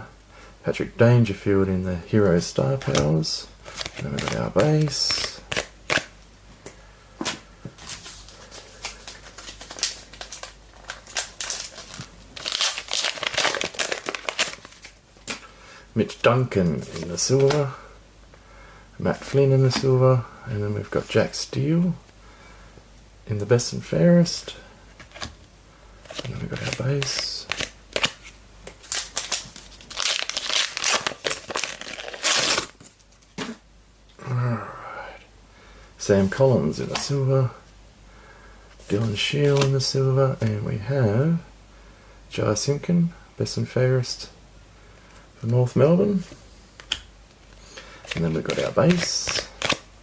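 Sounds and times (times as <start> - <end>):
card pack wrapper crinkling: 3.7 - 6.1, 7.9 - 15.4, 16.8 - 17.7, 26.1 - 32.9, 48.0 - 49.9.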